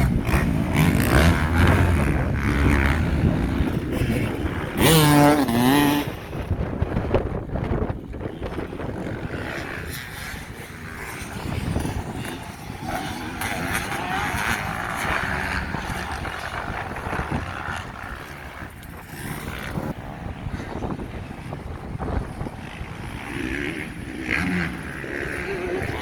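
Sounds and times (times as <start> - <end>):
motocross bikes revving: 0.0 - 26.0.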